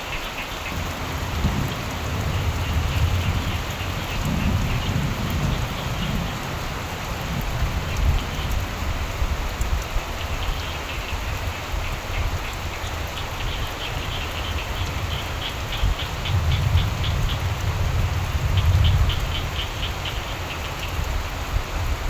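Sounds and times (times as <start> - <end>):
frogs croaking: 0.0 - 9.2, 10.0 - 21.2
steady rain: 0.0 - 22.0
low thunder rumble: 0.7 - 10.5, 14.0 - 20.4.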